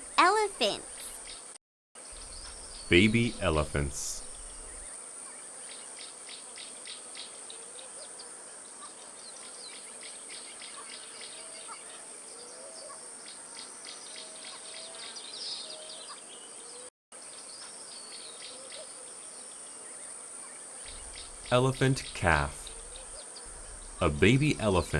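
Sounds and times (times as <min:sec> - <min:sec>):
quick insect chirps: 0:02.0 - 0:05.0, 0:20.9 - 0:24.2
high insect drone: 0:02.0 - 0:05.1, 0:20.9 - 0:24.9.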